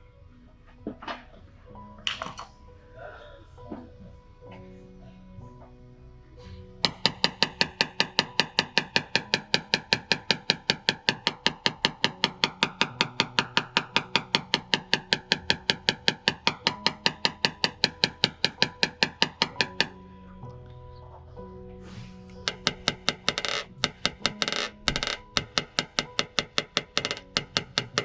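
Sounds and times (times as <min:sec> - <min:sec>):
background music: 0:00.0 - 0:28.0
rapid sharp taps: 0:06.8 - 0:20.0, 0:22.5 - 0:28.0.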